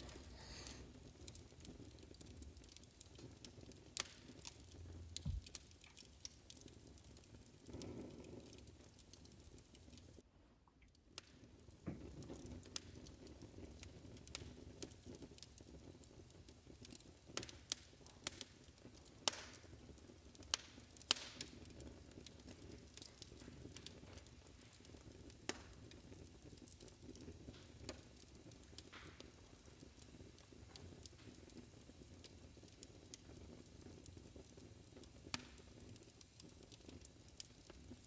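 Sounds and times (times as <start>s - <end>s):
low rumble of flames: 0.0s - 10.2s
fire crackling and popping: 0.0s - 10.3s, 10.9s - 38.0s.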